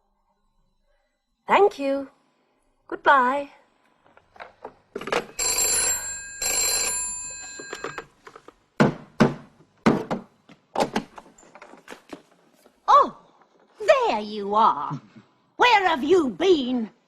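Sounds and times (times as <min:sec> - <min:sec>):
telephone bell ringing: 0:05.2 - 0:08.1.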